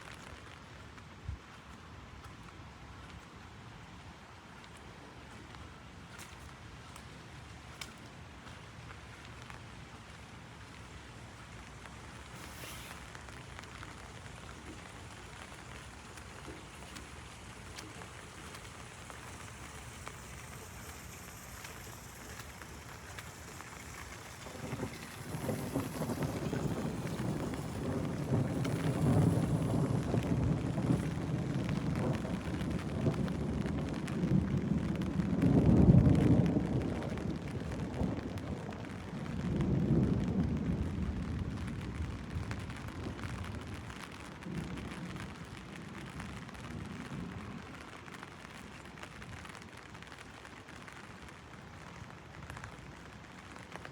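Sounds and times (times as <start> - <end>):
rain pattering on umbrella: 0.0 - 53.9
thunder rumbling: 12.0 - 48.0.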